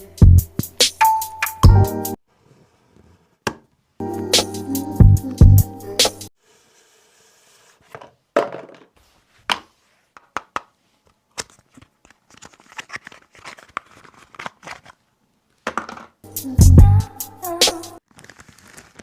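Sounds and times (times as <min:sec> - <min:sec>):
cardboard and plastic crinkling: 0:11.4 - 0:15.0, 0:18.0 - 0:19.0.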